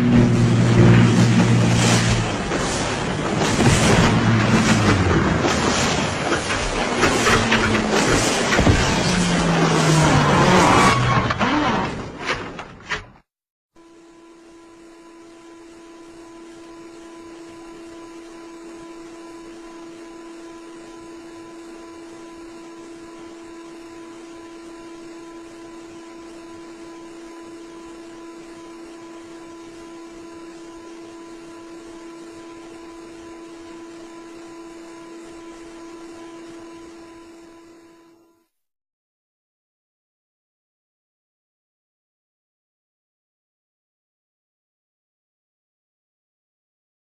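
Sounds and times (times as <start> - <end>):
steady hum: 0.0 - 12.2, 13.8 - 38.5.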